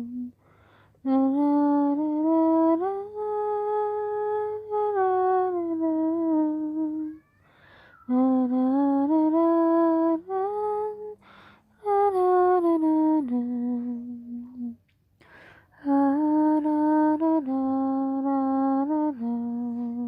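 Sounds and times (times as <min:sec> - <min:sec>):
woman humming a lullaby: 0:00.0 - 0:00.4, 0:01.0 - 0:14.9, 0:15.8 - 0:20.0
short breaths: 0:00.4 - 0:01.0, 0:07.4 - 0:08.1, 0:11.2 - 0:11.7, 0:15.2 - 0:15.8.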